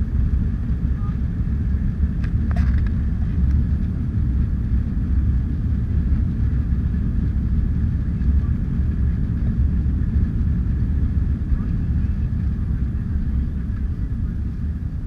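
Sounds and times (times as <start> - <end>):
faint high whine: 0.0 - 3.4
jet engine rumble in cabin: 0.0 - 15.0.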